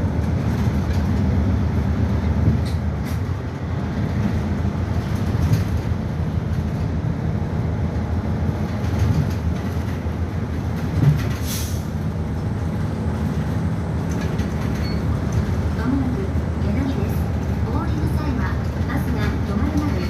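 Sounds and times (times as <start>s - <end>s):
bus engine and road drone: 0.0s - 20.0s
short hiss of air: 11.4s - 11.9s.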